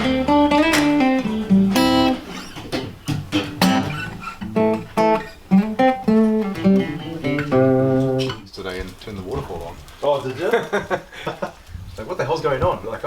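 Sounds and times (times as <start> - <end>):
guitar plucked and strummed: 0.0 - 8.4.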